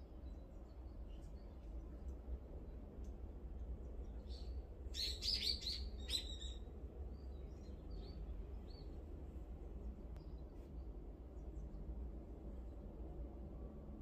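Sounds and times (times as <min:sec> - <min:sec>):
small bird chirping: 0:04.0 - 0:06.6
low steady rumble: 0:05.9 - 0:14.0.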